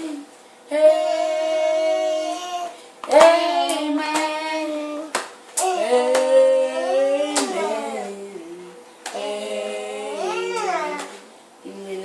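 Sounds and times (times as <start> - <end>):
hand claps: 3.0 - 4.4, 5.1 - 6.4, 7.4 - 7.6
group of voices singing: 3.1 - 12.0.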